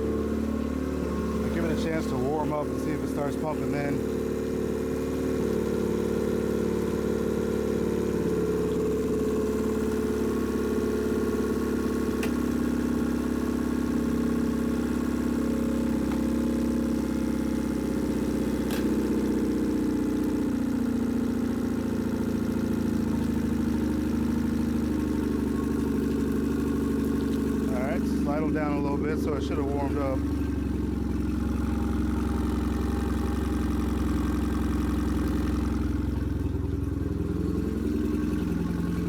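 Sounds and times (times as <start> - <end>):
outboard motor idling: 0.0 - 39.0.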